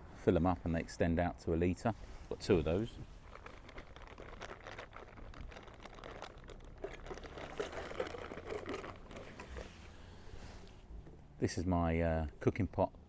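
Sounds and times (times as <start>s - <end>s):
camping kit crinkling and rustling: 2.3s - 10.9s.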